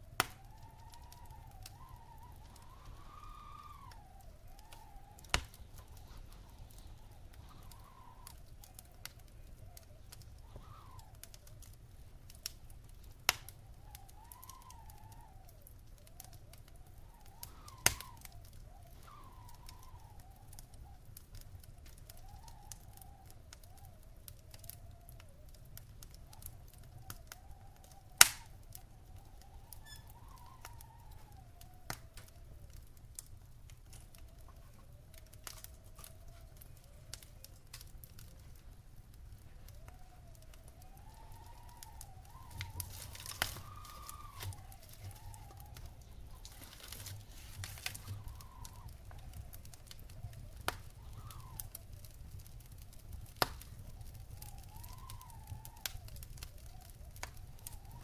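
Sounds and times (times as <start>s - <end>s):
faint wavering whistle: 0.0s - 11.6s, 13.5s - 32.7s, 39.5s - 52.1s, 53.6s - 58.0s
wood fire crackling and popping: 0.0s - 58.0s.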